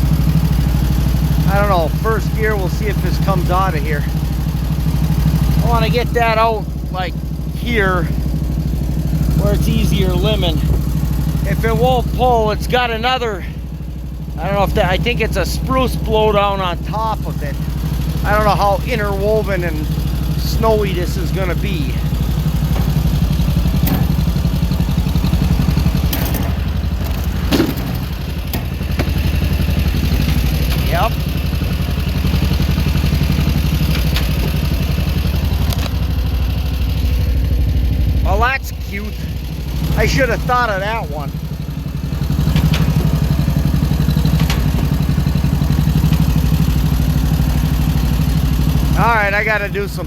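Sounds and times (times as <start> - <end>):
log-skidding machine engine running: 0.0 - 50.0
chain and log knocking and clanking: 22.6 - 24.3, 26.0 - 29.4, 42.4 - 43.4.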